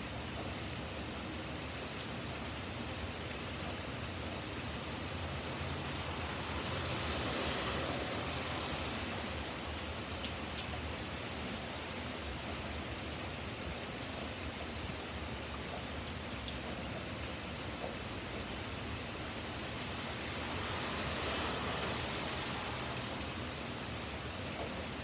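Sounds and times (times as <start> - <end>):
rain on pavement: 0.0 - 25.0
car tyres hissing on wet road: 4.8 - 10.8, 18.4 - 25.0.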